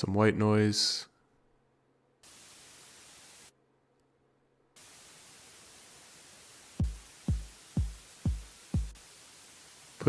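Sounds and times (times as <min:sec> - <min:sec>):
synthesized white noise hiss: 0:02.2 - 0:03.6, 0:04.7 - 0:10.0
electronic kick drum thump: 0:06.8 - 0:09.0.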